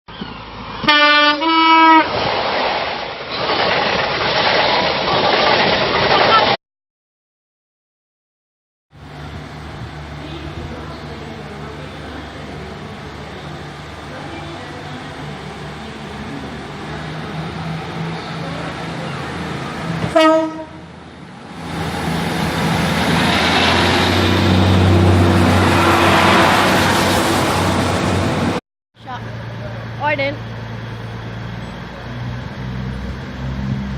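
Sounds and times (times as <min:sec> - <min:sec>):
train rumbling: 0:00.2 - 0:06.6, 0:09.0 - 0:33.9
two-note train horn: 0:00.9 - 0:02.1, 0:20.1 - 0:20.9.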